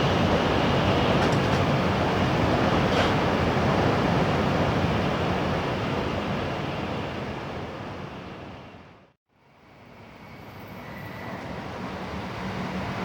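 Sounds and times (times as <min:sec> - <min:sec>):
train running rumble: 0:00.0 - 0:08.0.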